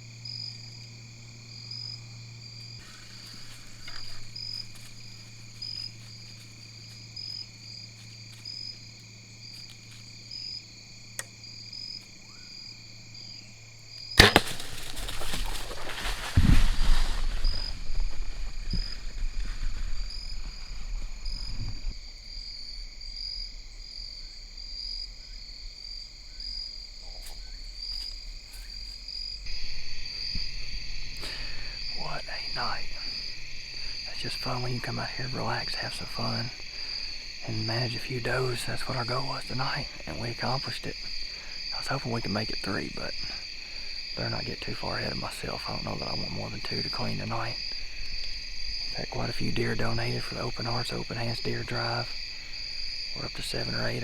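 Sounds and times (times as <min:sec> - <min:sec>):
crickets trilling: 0:00.0 - 0:54.0
bow string crack: 0:02.8 - 0:05.6, 0:11.1 - 0:12.4, 0:14.0 - 0:22.0, 0:29.5 - 0:37.4
heavy thump: 0:14.2 - 0:20.2
loud rustling: 0:14.2 - 0:21.7.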